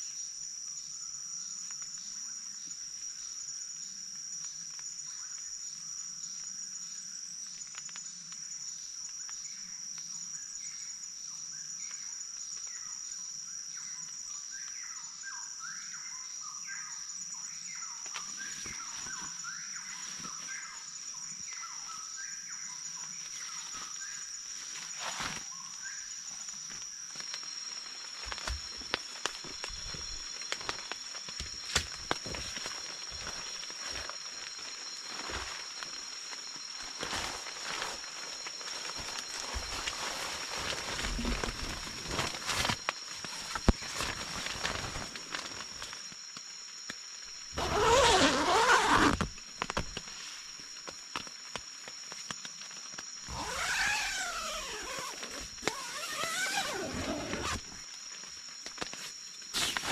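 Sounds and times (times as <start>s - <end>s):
insect chirping pulse: 0.0s - 59.9s
insect drone: 0.0s - 59.9s.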